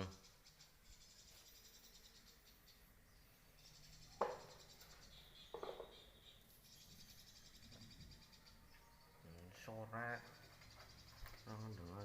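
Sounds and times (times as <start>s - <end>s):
insects chirring: 3.6s - 8.6s.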